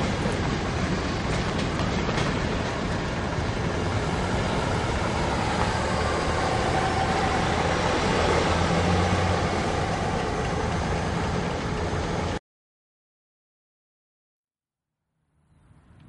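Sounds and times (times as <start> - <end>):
freight train rumble: 0.0 - 12.4
pickup truck engine: 0.0 - 12.4.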